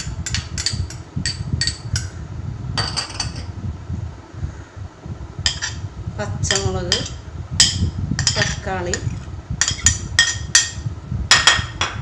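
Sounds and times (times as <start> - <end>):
low steady rumble: 0.0 - 12.0
spoon clinking against bowl: 0.2 - 2.1, 5.5 - 5.8, 6.5 - 11.7.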